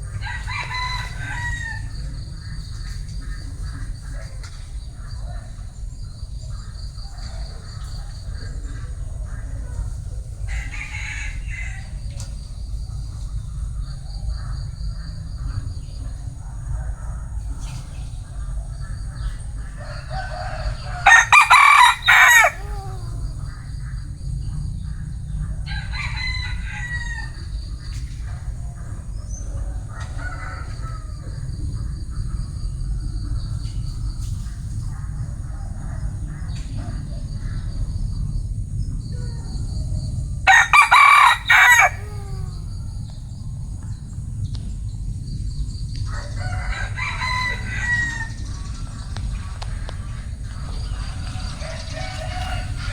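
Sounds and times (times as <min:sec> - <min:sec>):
rooster crowing: 0:00.0 - 0:02.5, 0:10.5 - 0:12.2, 0:19.6 - 0:24.0, 0:25.6 - 0:27.6, 0:40.5 - 0:42.8, 0:46.1 - 0:48.8, 0:50.5 - 0:52.9
steady low rumble: 0:11.9 - 0:25.9, 0:41.4 - 0:47.7, 0:48.3 - 0:52.9
faint bird calls: 0:13.3 - 0:25.4, 0:40.5 - 0:43.2.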